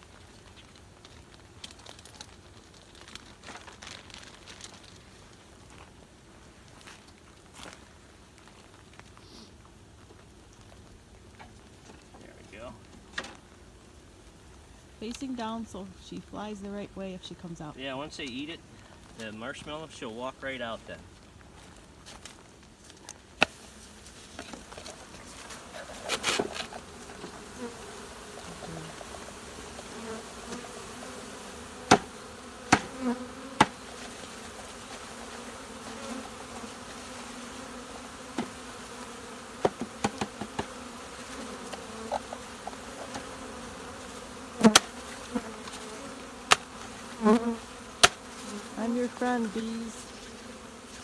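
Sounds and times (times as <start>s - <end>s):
honeybees buzzing: 15.0s - 19.1s, 23.4s - 51.0s.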